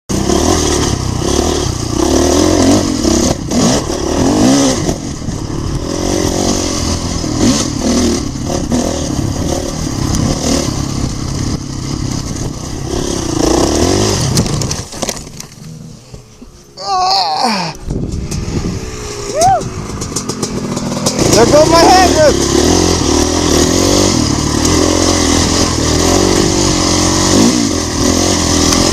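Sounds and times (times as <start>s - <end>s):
dirt bike engine revving: 0.1s - 16.3s, 17.2s - 28.9s.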